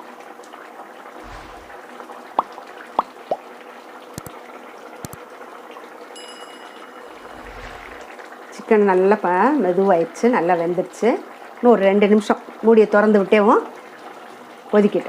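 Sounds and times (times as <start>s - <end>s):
thick gravy bubbling: 0.9s - 4.4s.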